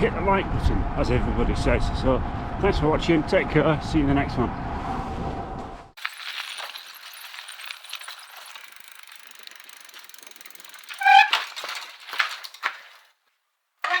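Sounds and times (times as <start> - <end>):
bicycle freewheel ticking: 6.0 - 13.1.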